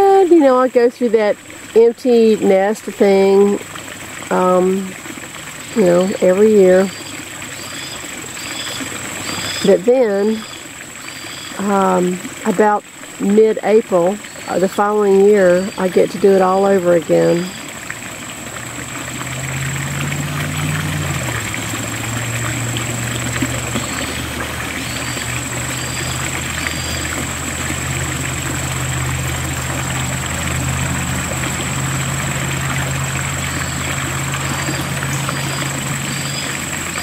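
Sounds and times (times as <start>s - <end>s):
engine running: 0.0s - 37.0s.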